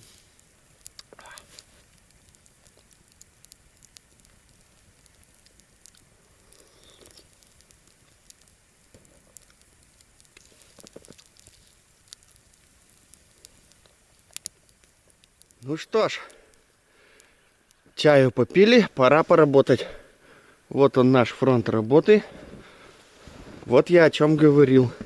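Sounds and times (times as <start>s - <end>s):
soft rustles: 0.0s - 15.5s, 22.0s - 25.0s
campfire crackling and popping: 0.0s - 25.0s.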